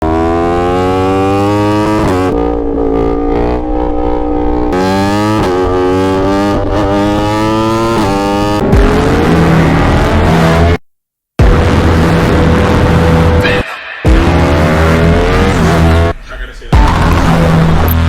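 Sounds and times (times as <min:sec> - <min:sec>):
motorcycle engine accelerating: 0:00.0 - 0:10.8, 0:11.4 - 0:16.1, 0:16.8 - 0:18.0.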